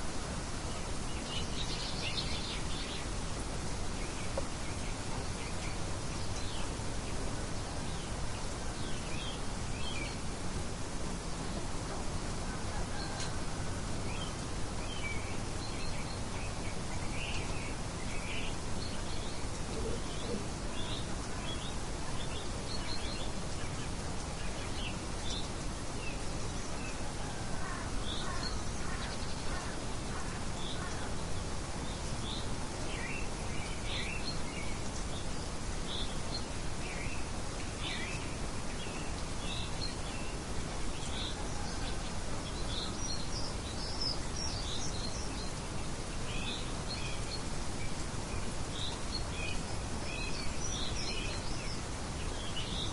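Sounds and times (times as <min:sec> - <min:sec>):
outdoor ambience hiss: 0:00.0 - 0:52.9
birds chirping: 0:00.2 - 0:52.9.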